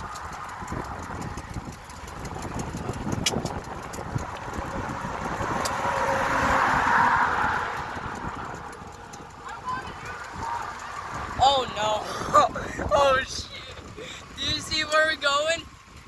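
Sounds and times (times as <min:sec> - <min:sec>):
sharp clicks: 0:00.0 - 0:06.0
motor vehicle passing: 0:00.0 - 0:16.0
wind buffeting microphone: 0:00.0 - 0:16.0.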